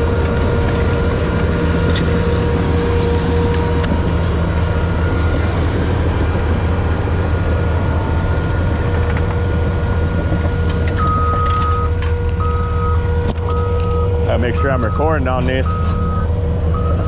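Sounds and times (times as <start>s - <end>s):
heavy vehicle engine running: 0.0s - 17.0s
reversing beeper: 10.6s - 17.0s.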